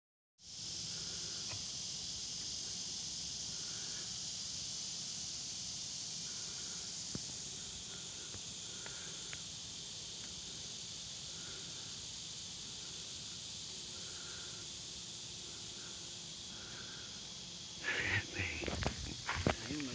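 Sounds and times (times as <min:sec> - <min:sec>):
high-pitched insect chorus: 0:00.4 - 0:19.9
faint ticks: 0:01.4 - 0:01.7, 0:02.3 - 0:02.6, 0:07.1 - 0:07.4, 0:08.2 - 0:09.5, 0:10.2 - 0:10.4.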